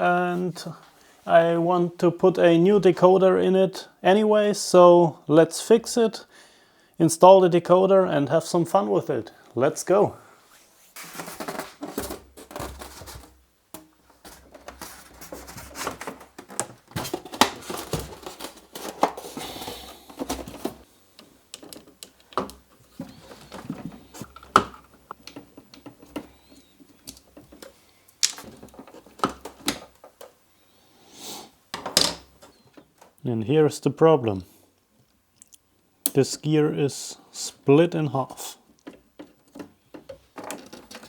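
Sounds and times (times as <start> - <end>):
small plastic and metal parts clattering: 11.0 - 20.8, 21.5 - 30.3, 38.8 - 41.0.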